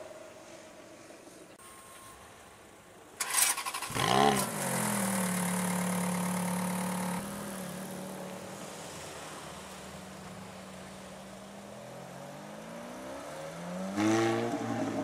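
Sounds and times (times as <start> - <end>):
car engine revving and idling: 3.6 - 15.0.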